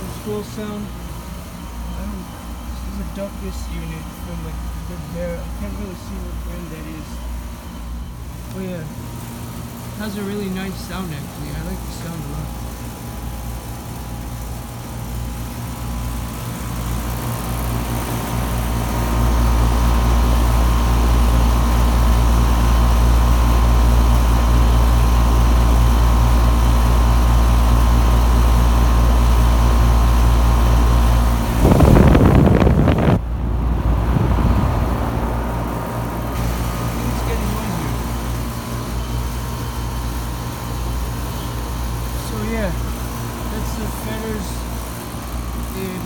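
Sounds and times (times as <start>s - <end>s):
air conditioner humming: 0.0s - 46.0s
loud rushing noise: 31.4s - 36.4s.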